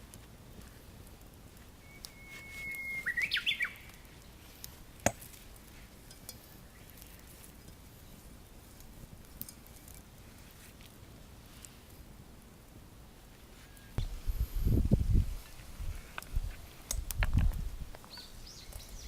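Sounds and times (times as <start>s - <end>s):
bird singing: 1.8s - 4.0s, 18.0s - 19.0s.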